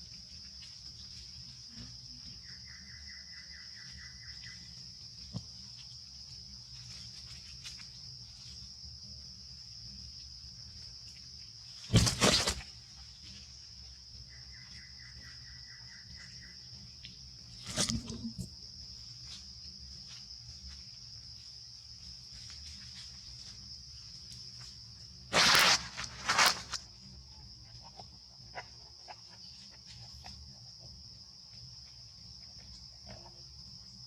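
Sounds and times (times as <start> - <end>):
insects droning: 0.0 - 34.0
short loud noises: 25.3 - 26.8.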